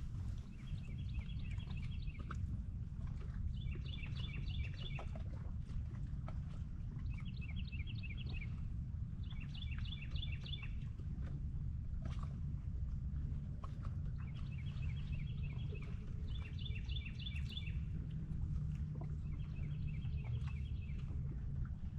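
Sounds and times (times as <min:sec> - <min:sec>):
low rumble: 0:00.0 - 0:21.9
songbird chirping: 0:14.4 - 0:18.0.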